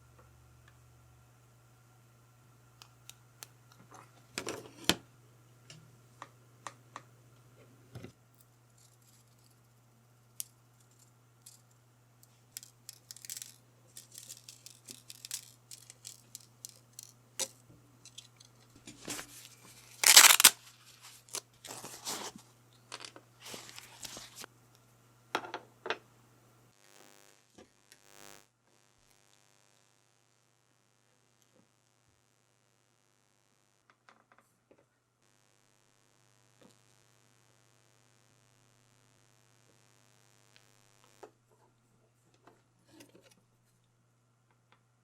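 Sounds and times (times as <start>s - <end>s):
packaging rustling and tearing: 19.1s - 22.4s.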